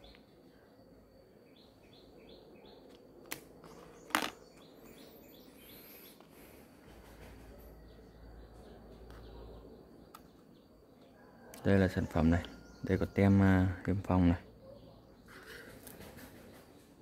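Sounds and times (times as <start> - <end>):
birds chirping: 0.0 - 17.0
objects tapped down on a table: 3.3 - 4.4.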